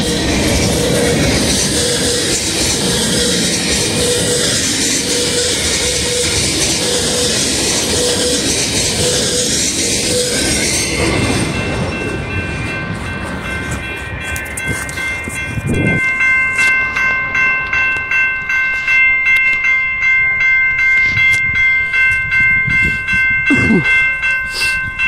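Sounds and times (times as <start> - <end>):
freight cars rumbling and clattering: 0.0 - 16.6
bell ringing: 10.1 - 25.0.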